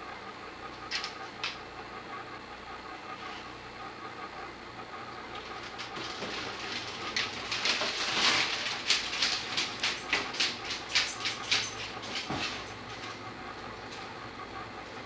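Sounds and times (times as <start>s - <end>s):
dog rustling and crinkling: 5.4s - 13.3s.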